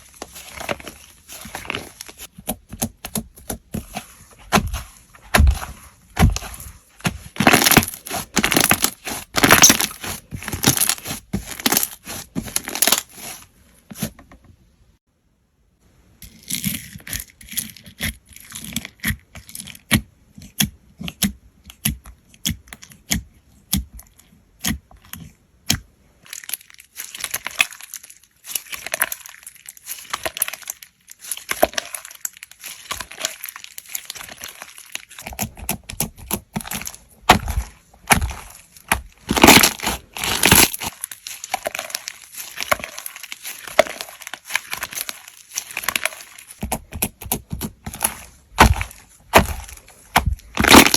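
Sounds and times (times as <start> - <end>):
slime popping and crackling: 0.0 - 13.4, 26.3 - 50.9.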